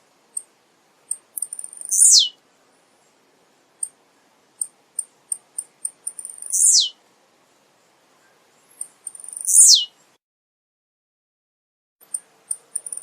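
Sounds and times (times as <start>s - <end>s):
bird singing sharp high chips: 1.1s - 2.4s, 4.6s - 7.0s, 8.6s - 10.0s, 12.0s - 13.0s.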